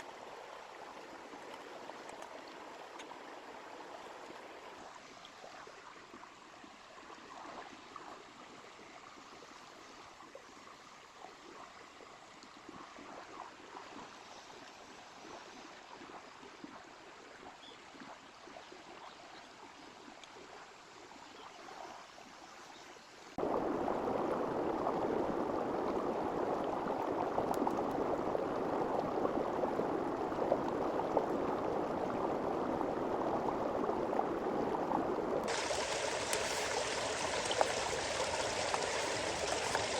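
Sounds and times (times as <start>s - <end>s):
river flowing over stones: 0.0s - 11.4s, 23.4s - 39.9s.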